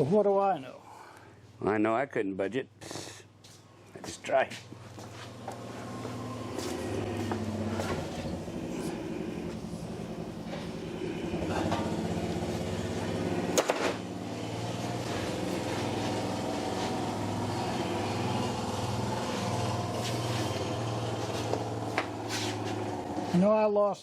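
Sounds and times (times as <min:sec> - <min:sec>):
machine hum: 0:05.2 - 0:23.4.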